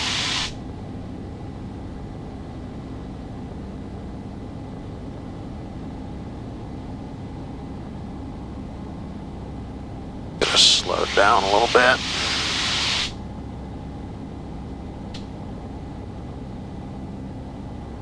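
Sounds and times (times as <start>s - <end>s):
bright hiss: 0.0s - 0.5s, 10.4s - 13.2s
light aircraft engine droning: 0.0s - 18.0s.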